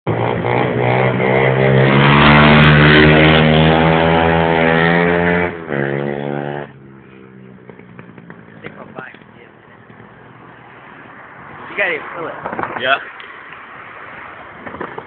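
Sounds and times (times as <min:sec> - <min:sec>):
motorbike engine revving: 0:00.1 - 0:10.4.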